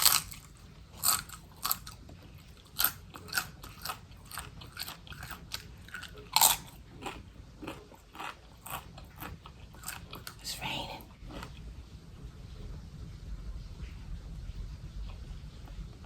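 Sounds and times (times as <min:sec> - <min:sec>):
crisp food crunching: 0:00.0 - 0:11.6.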